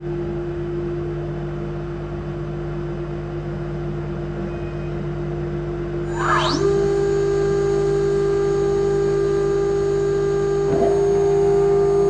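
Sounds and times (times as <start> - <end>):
machine hum: 6.0 - 7.7.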